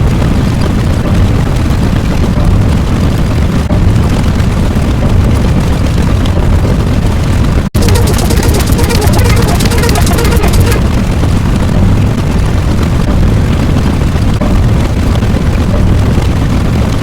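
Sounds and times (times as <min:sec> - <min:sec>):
rough sound with steady hum: 0:07.8 - 0:13.7.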